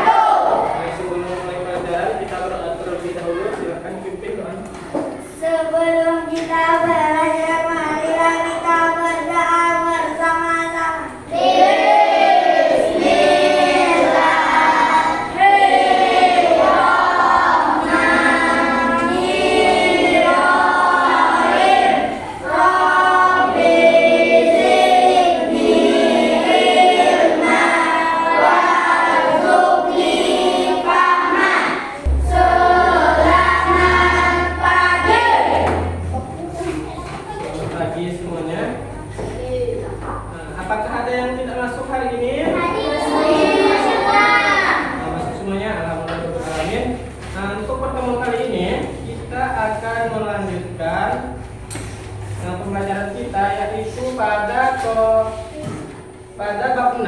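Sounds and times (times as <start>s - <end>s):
children singing together: 0.0s - 1.3s, 5.2s - 37.3s, 42.5s - 45.5s
low hum: 32.0s - 36.5s.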